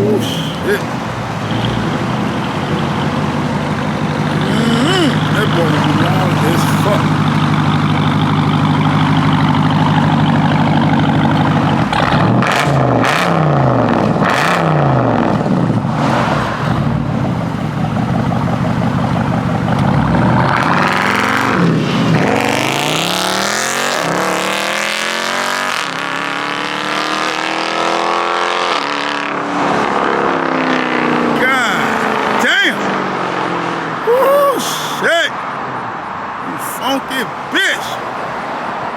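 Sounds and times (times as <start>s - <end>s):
loud engine exhaust revving: 5.1s - 27.8s.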